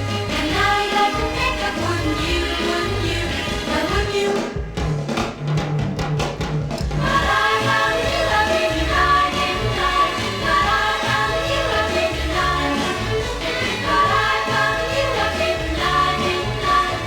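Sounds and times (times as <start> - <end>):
pop song with band: 0.0 - 5.0, 6.9 - 17.0
drum hits: 3.4 - 10.9.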